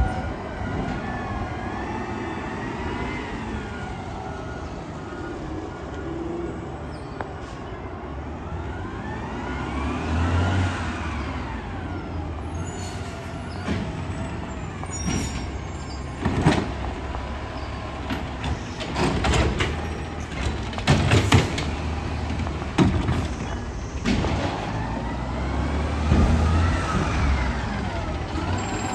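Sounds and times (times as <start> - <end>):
metallic clanks and bangs: 18.0 - 24.8.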